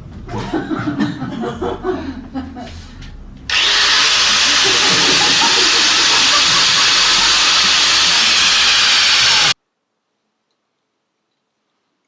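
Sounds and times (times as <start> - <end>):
loud steady hissing: 3.5 - 9.6.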